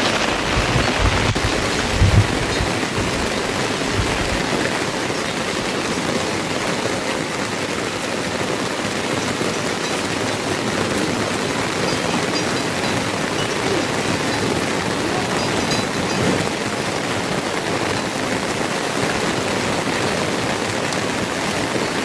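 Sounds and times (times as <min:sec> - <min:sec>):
low bumps: 0:00.0 - 0:04.4
heavy rain falling: 0:00.0 - 0:22.0.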